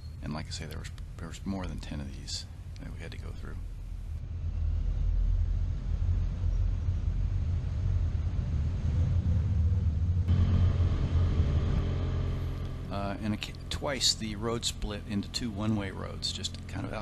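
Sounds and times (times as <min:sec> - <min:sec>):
motorcycle engine rumble: 0:00.0 - 0:17.0
wind noise on microphone: 0:03.7 - 0:12.0.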